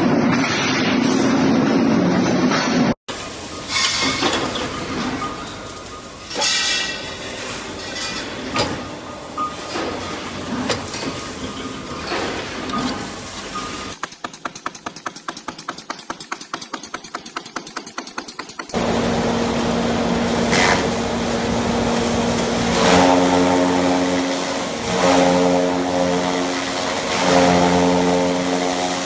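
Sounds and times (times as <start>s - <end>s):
rapid mechanical clicking: 13.9s - 18.8s
machine humming: 18.6s - 29.0s.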